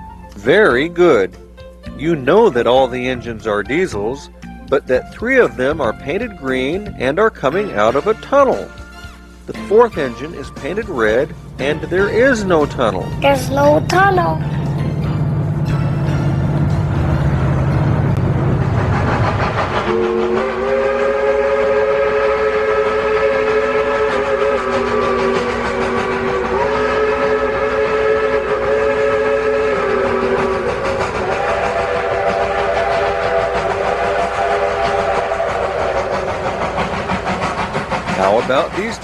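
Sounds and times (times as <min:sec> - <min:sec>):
locomotive whistle chord: 0:00.0 - 0:39.0
low engine rumble: 0:09.3 - 0:20.6.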